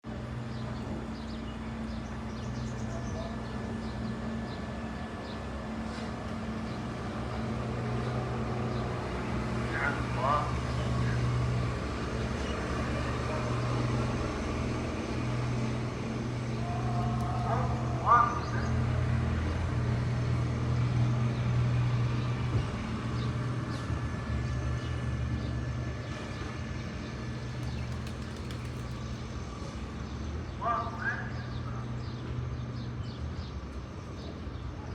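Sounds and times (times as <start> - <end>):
low mechanical hum: 0.1 - 34.9
small birds chirping: 26.3 - 29.3.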